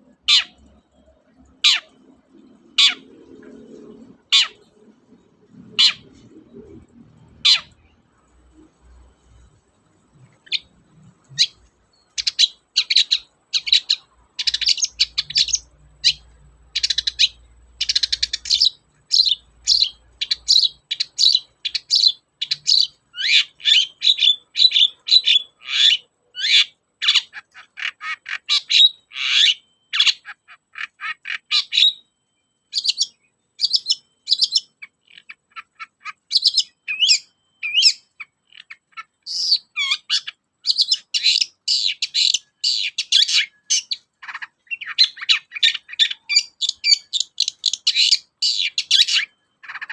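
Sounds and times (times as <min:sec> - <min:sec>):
bird singing sharp chirps: 0:32.7 - 0:49.9.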